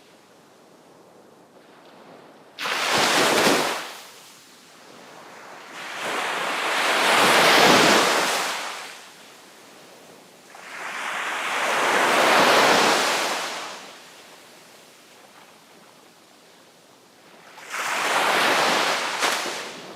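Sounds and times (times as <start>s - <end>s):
ocean surf breaking: 2.6s - 4.0s, 5.8s - 9.0s.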